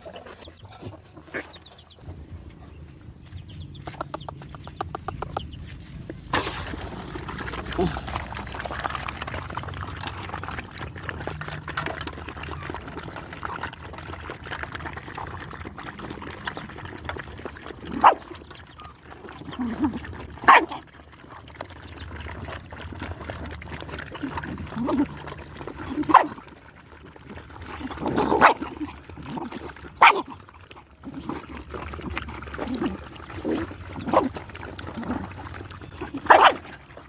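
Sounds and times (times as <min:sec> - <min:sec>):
dogs eating: 0:00.0 - 0:37.0
dog barking: 0:18.0 - 0:18.2, 0:20.4 - 0:20.8, 0:30.0 - 0:30.2, 0:36.2 - 0:36.6.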